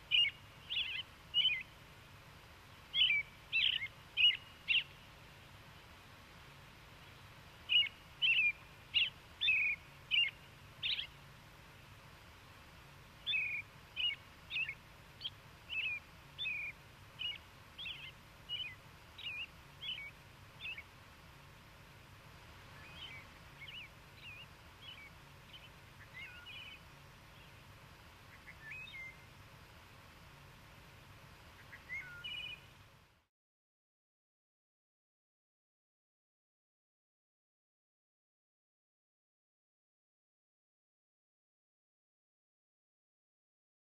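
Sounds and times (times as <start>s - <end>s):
songbird chirping: 0.0s - 32.9s
faint low hum: 0.0s - 33.3s.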